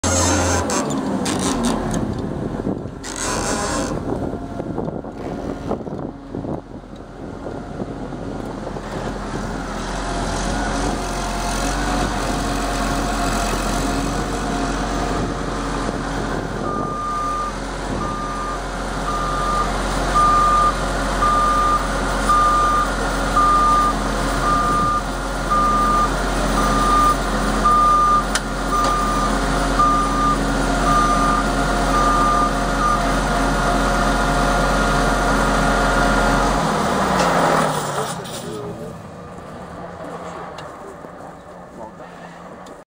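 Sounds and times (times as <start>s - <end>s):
harvester machinery running: 0.0s - 42.8s
warning beeper: 16.7s - 33.1s.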